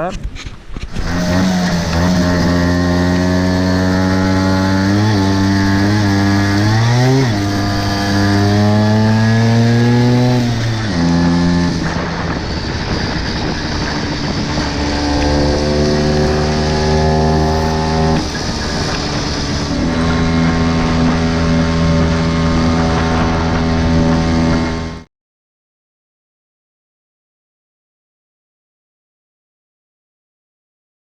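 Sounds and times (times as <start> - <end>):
scooter engine accelerating: 0.9 - 25.1.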